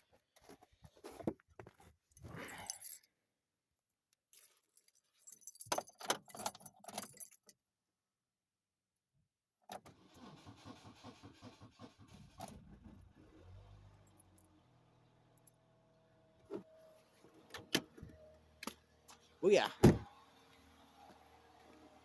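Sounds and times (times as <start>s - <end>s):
keys jingling in ignition: 4.4s - 7.6s
starter cranking engine: 9.9s - 13.3s.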